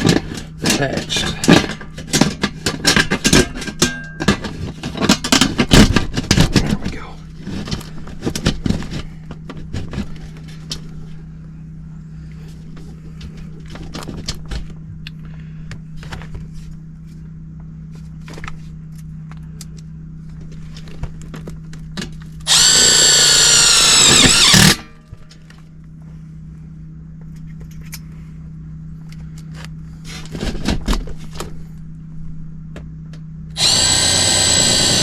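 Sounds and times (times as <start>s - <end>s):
steady low hum: 0.0s - 35.0s
cordless drill running: 22.5s - 24.8s, 33.6s - 35.0s.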